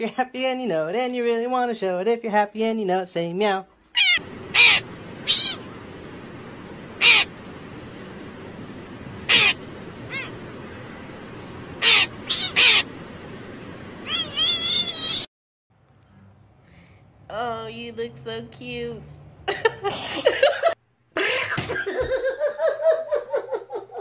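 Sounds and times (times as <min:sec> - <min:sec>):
cat meowing and chirping: 0:03.9 - 0:05.9, 0:07.0 - 0:07.4, 0:09.2 - 0:10.8, 0:11.8 - 0:13.0, 0:14.0 - 0:15.3
steady background hiss: 0:04.2 - 0:15.3.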